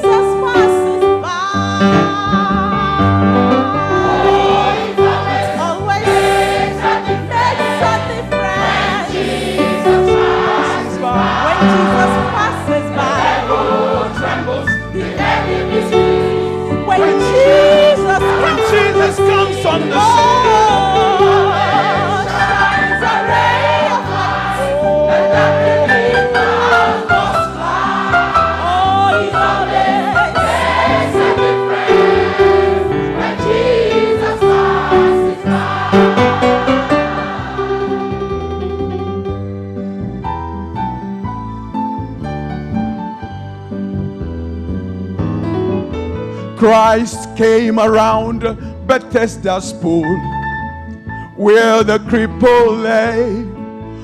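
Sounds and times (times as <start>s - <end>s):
gospel choir singing: 1.8s - 38.7s.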